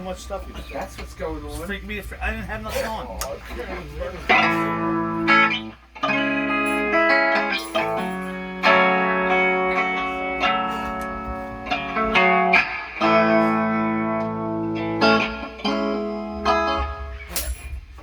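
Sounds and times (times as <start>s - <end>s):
guitar chords ringing: 4.1s - 18.0s.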